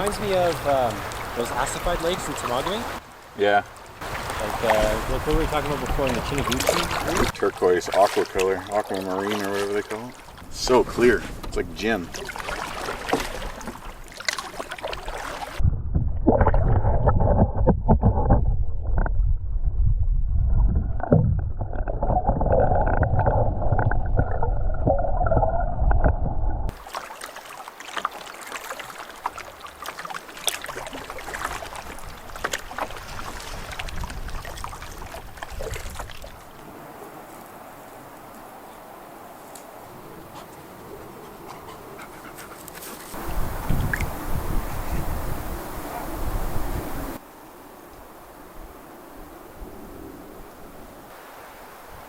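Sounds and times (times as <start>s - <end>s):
paddle strokes: 0.0s - 15.6s, 26.7s - 47.5s
water sloshing against hull: 0.0s - 15.6s, 20.8s - 38.4s, 40.1s - 44.9s
water splashes and drips: 0.0s - 15.6s, 26.7s - 38.5s, 41.5s - 44.2s.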